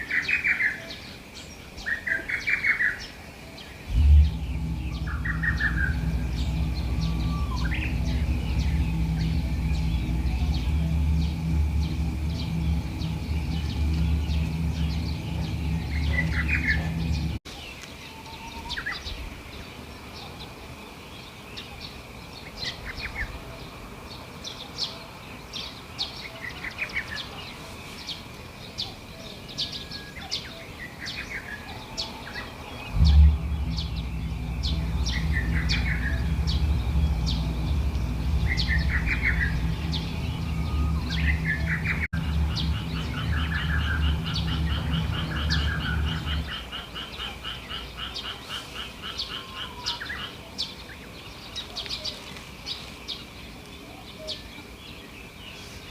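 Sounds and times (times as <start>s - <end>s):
small birds chirping: 0.0s - 55.9s
low steady rumble: 3.8s - 17.4s, 32.0s - 48.3s
faint steady high tone: 3.9s - 17.4s, 31.8s - 46.6s.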